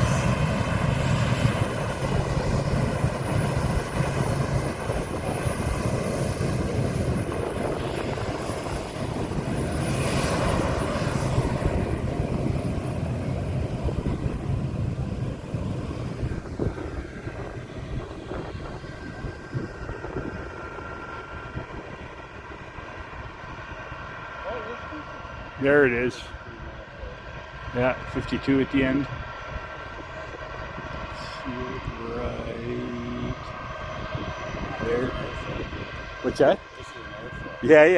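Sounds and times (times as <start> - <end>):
aircraft engine roar: 0.0 - 37.9.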